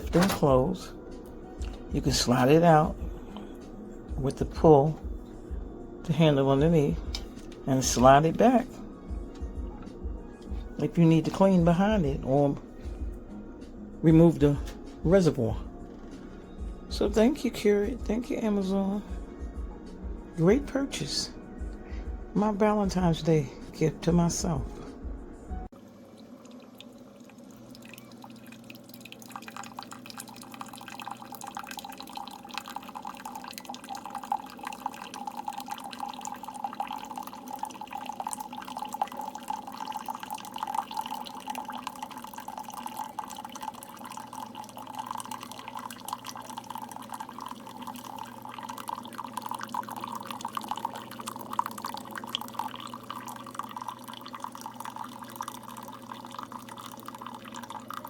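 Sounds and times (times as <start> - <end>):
coffee dripping into a cup: 0.0 - 13.1, 25.8 - 58.0
coffee machine humming: 0.0 - 58.0.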